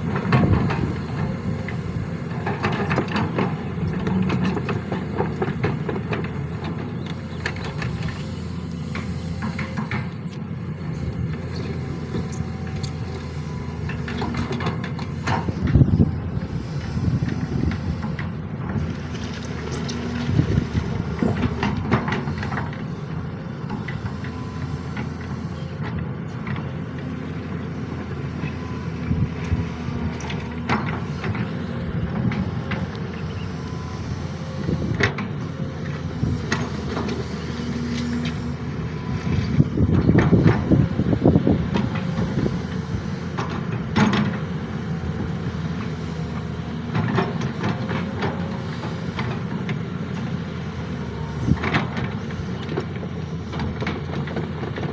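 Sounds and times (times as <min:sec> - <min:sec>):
excavator running: 0:00.0 - 0:54.9.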